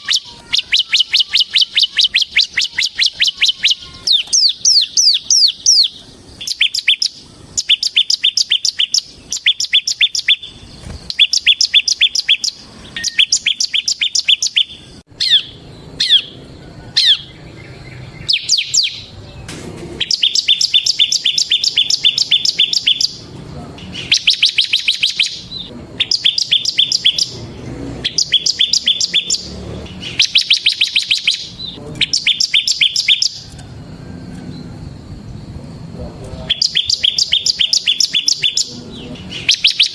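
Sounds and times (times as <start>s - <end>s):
down-slurred bird notes: 0.0s - 33.6s, 36.4s - 39.9s
bird trilling song: 0.0s - 35.5s, 36.3s - 39.9s.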